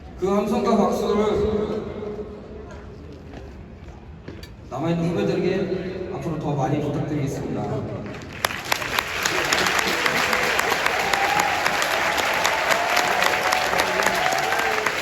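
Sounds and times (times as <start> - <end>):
stadium crowd applauding and cheering: 8.1 - 15.0.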